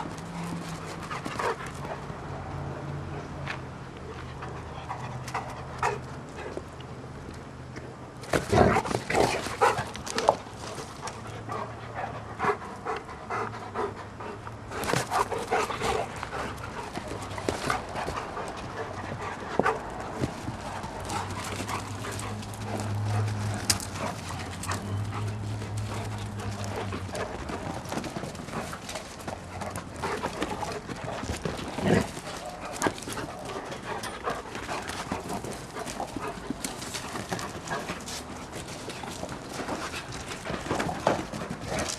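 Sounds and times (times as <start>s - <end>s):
dogs panting: 0.0s - 2.2s, 4.1s - 6.7s, 8.6s - 41.9s
dogs scuffling: 14.7s - 41.9s.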